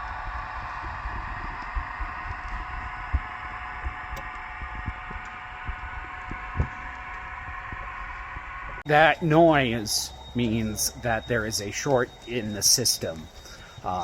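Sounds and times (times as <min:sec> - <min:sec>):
low thumps: 0:00.0 - 0:08.8
electrical buzzing: 0:00.0 - 0:14.0.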